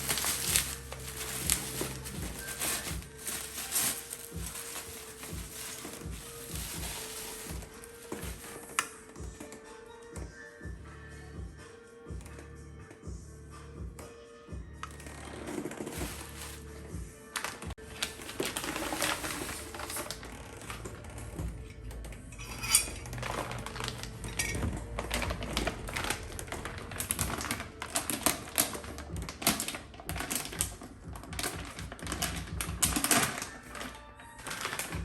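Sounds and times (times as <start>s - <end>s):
rustling: 0.0s - 8.8s, 15.6s - 21.0s
hands handling objects: 0.0s - 9.6s, 15.6s - 21.3s, 21.9s - 35.0s.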